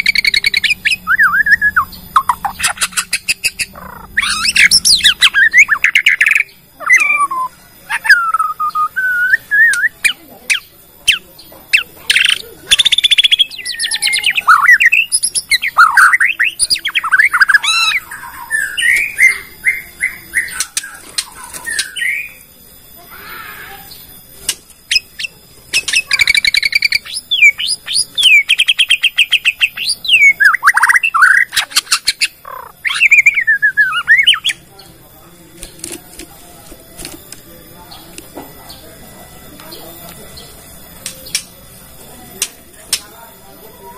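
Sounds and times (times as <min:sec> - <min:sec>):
songbird whistled song: 0:00.0 - 0:34.9.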